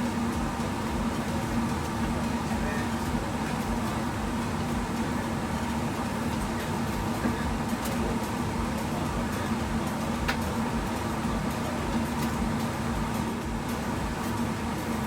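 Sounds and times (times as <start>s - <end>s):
mechanical hum with air noise: 0.0s - 15.0s.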